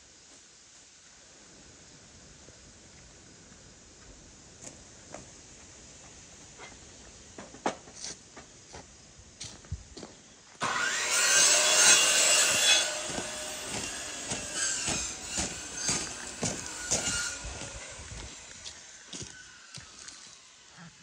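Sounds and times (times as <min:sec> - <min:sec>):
wood being sawn: 0:10.6 - 0:20.5.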